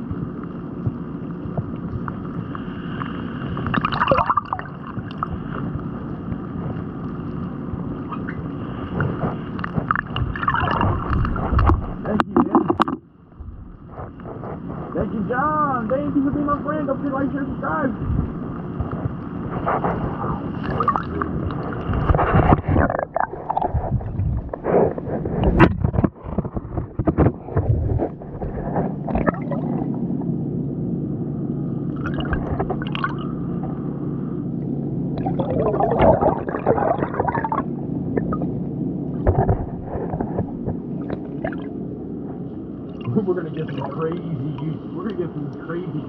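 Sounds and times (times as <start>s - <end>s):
water sloshing and gurgling: 0.0s - 15.3s, 18.0s - 46.0s
steady low hum: 0.0s - 46.0s.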